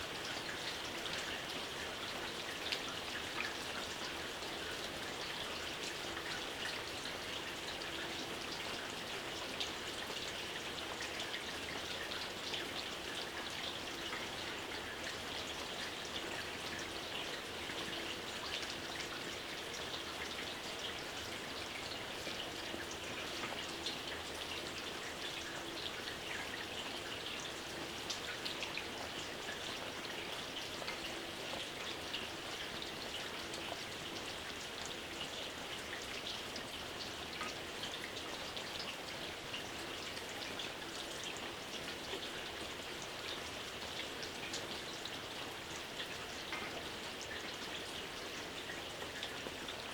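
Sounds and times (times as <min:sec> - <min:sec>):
light rain pattering: 0:00.0 - 0:49.9.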